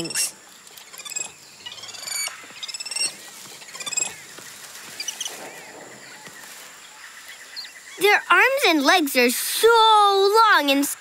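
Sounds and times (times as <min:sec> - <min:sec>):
high-pitched bird chirping trills: 0:00.0 - 0:04.2.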